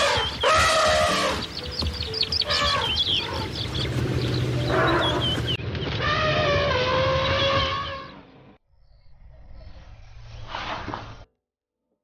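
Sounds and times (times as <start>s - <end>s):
loud animal call: 0.0s - 8.2s
birds chirping: 0.0s - 10.2s.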